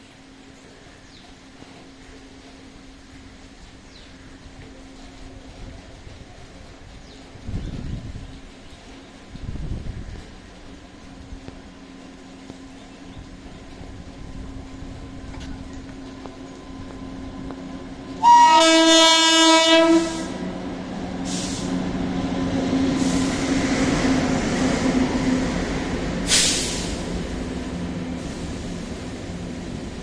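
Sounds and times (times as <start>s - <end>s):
rumble of train passing: 0.0s - 30.0s
locomotive horn blast: 18.1s - 20.6s
short sharp hiss: 21.2s - 21.8s, 26.3s - 27.1s.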